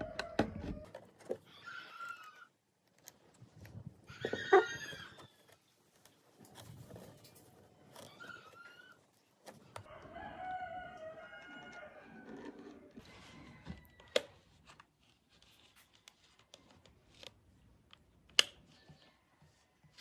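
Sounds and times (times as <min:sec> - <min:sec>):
rooster crowing: 0:00.0 - 0:00.9, 0:09.9 - 0:14.2.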